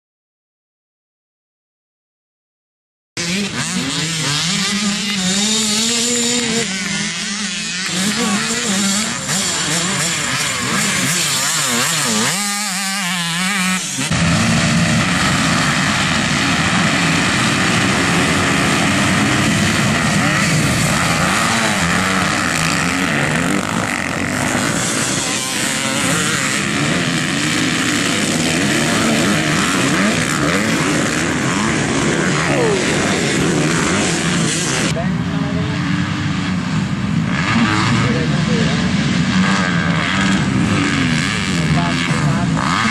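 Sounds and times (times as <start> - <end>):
motocross bike engines revving: 3.2 - 42.9.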